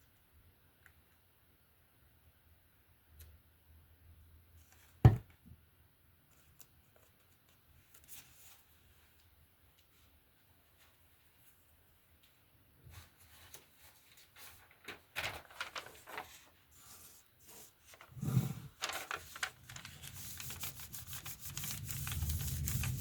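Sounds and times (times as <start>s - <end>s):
knock on paper: 5.0s - 5.3s
paper rustling: 12.9s - 23.0s.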